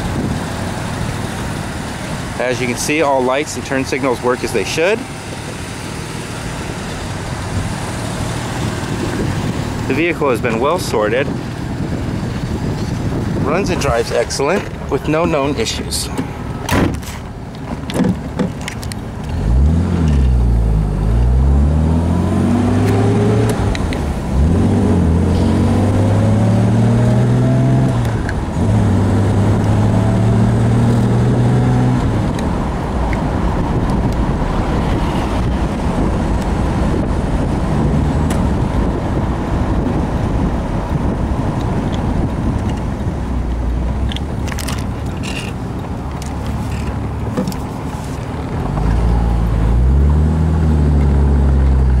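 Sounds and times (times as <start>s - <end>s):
car engine accelerating: 0.0s - 52.0s
road and wind noise: 0.0s - 52.0s.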